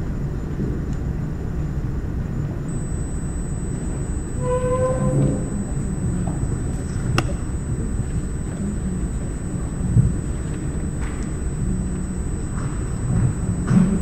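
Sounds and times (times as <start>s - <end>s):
faint high whine: 0.0s - 14.0s
short squeak-like tone: 2.7s - 7.0s
sharp click: 7.0s - 7.6s.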